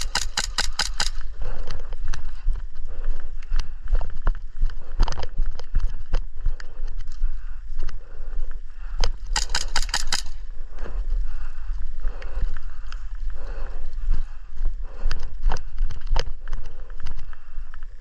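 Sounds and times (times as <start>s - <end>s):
airsoft gun shots: 0.0s - 1.2s, 9.3s - 10.4s.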